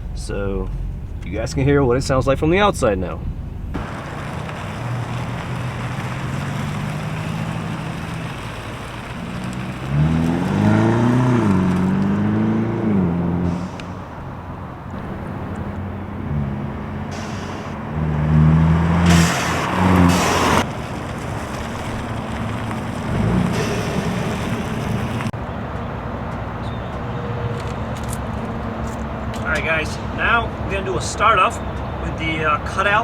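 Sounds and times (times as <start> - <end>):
car exhaust idling and revving: 0.0 - 33.0.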